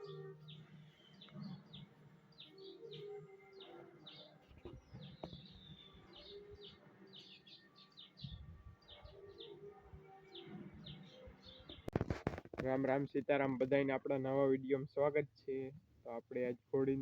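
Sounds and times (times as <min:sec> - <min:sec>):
low background noise: 0:00.0 - 0:17.0
small birds chirping: 0:00.0 - 0:17.0.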